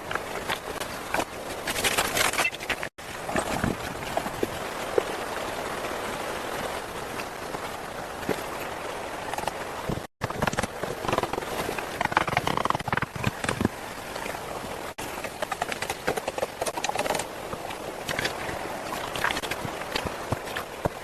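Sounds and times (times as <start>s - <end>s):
river water rushing: 3.0s - 10.0s.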